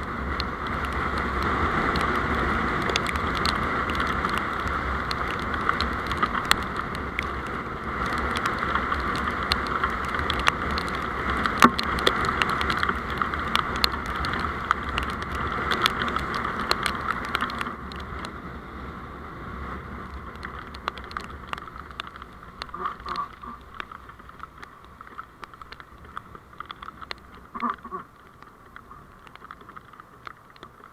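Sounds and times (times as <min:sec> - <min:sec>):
road vehicle running noise: 0:00.0 - 0:30.9
sharp ticks: 0:00.3 - 0:18.3.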